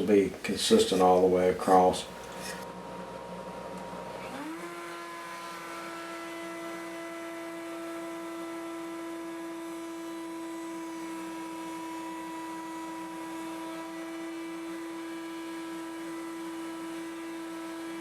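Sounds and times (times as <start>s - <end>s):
router motor high whine: 4.0s - 18.0s.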